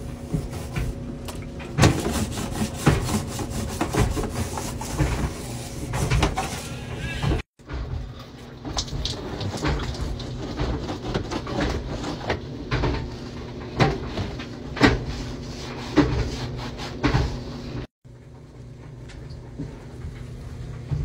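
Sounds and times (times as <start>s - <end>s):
hand scrubbing: 1.9s - 7.2s
water splashing and dripping: 8.2s - 10.8s.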